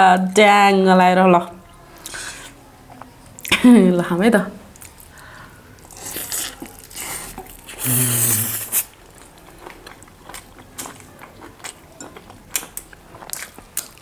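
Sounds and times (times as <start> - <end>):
wet chewing with mouth clicks: 4.7 - 14.0
loud bite into meat: 5.9 - 9.0.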